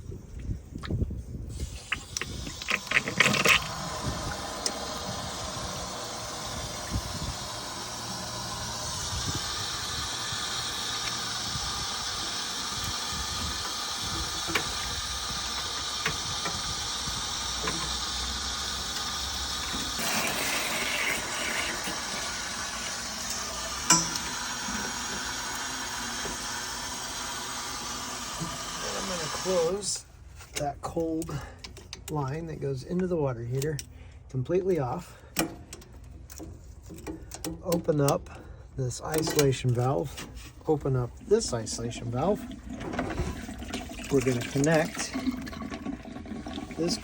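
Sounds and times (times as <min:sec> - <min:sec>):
water running into a bucket: 0:00.8 - 0:29.9, 0:41.1 - 0:47.0.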